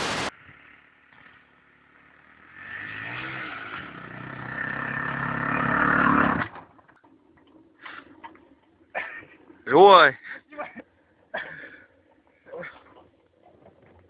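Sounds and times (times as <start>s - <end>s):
motorcycle engine accelerating: 0.0s - 9.7s.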